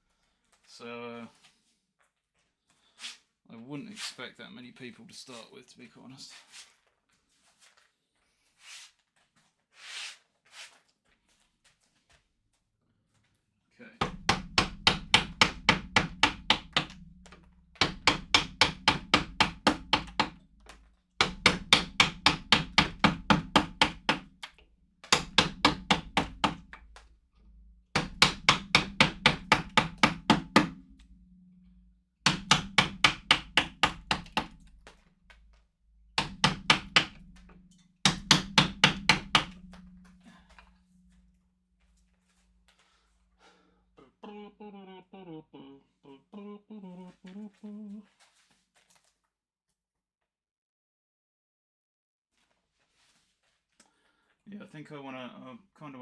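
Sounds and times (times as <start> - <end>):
mallet striking chisel into wood: 14.0 - 27.1, 27.9 - 31.6, 32.2 - 35.0, 36.2 - 40.7.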